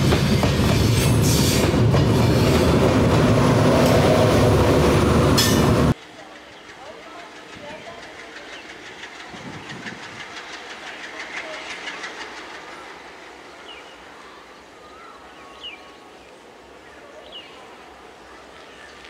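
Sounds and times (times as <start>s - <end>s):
train wheels rattling on bridge: 0.0s - 13.9s
birds chirping: 6.3s - 19.0s.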